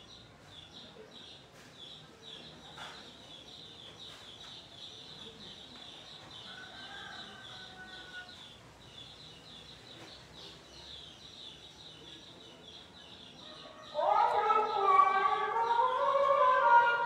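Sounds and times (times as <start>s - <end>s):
faint bird chirping: 0.0s - 16.5s.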